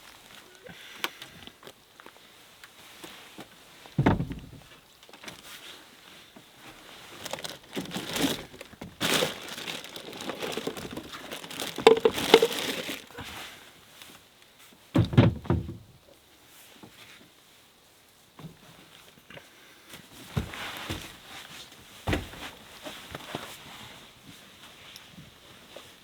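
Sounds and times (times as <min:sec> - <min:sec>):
crinkling and rustling: 0:00.0 - 0:15.9
dull thump: 0:04.0 - 0:04.7, 0:15.0 - 0:15.8.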